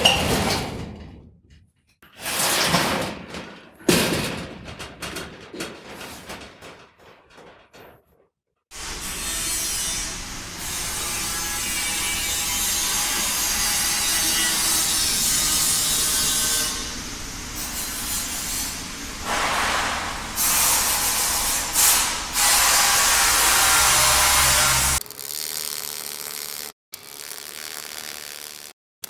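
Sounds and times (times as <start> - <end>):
factory machinery rubbing: 8.8 - 25.0.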